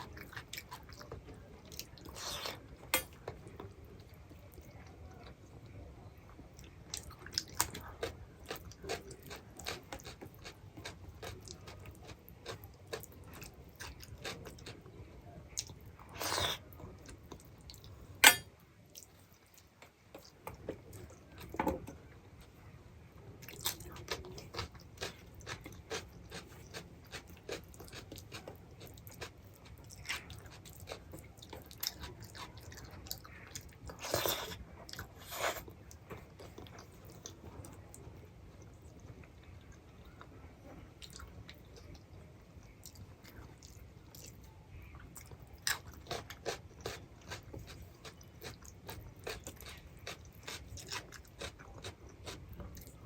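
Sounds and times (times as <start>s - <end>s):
person chewing food: 6.6s - 14.9s, 23.4s - 38.1s, 41.0s - 42.0s, 42.6s - 53.0s.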